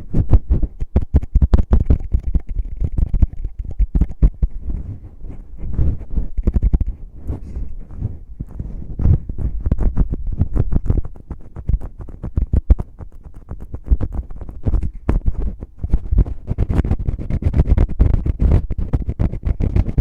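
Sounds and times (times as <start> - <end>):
fingers scratching on microphone: 0.0 - 20.0
deep muffled thuds: 2.8 - 12.8.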